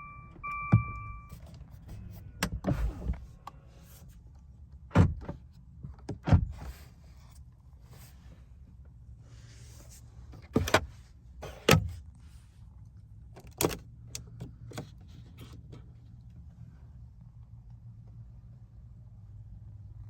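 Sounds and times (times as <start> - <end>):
low steady hum: 0.0 - 4.7.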